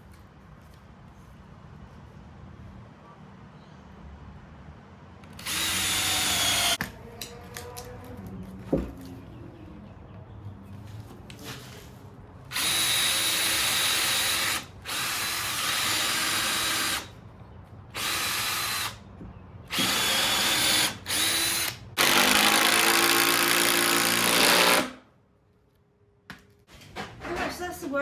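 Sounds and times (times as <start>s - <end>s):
power drill drilling into timber: 5.4s - 6.8s, 12.5s - 17.1s, 18.0s - 19.0s, 19.7s - 25.0s.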